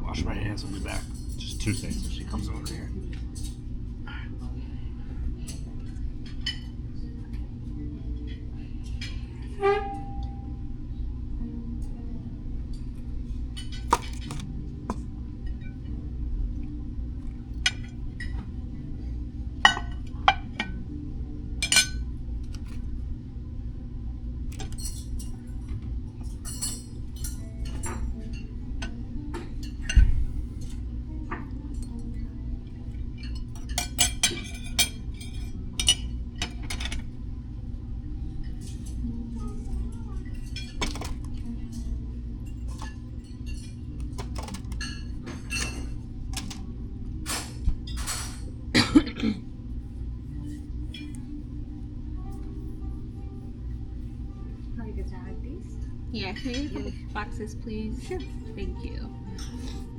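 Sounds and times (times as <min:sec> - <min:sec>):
low room hum: 0:00.0 - 0:59.9
dishes and cutlery clinking: 0:00.6 - 0:03.7, 0:05.4 - 0:07.5, 0:12.7 - 0:15.9, 0:17.6 - 0:18.6, 0:19.6 - 0:20.9, 0:21.6 - 0:22.8, 0:24.5 - 0:37.2, 0:38.4 - 0:49.4, 0:50.3 - 0:51.4, 0:55.8 - 0:59.9.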